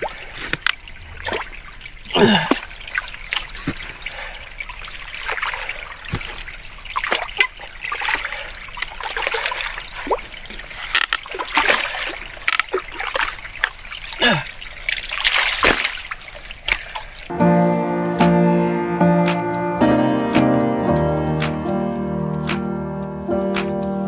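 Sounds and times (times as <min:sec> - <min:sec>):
small splashes and plops: 0:00.0 - 0:17.3
water trickling and gurgling: 0:00.0 - 0:17.3.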